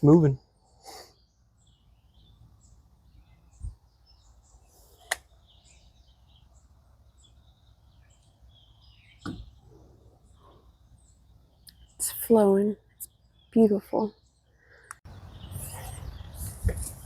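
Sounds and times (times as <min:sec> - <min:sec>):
small birds chirping: 0:00.0 - 0:17.0
sharp click: 0:05.0 - 0:05.3
dull thump: 0:09.2 - 0:09.6.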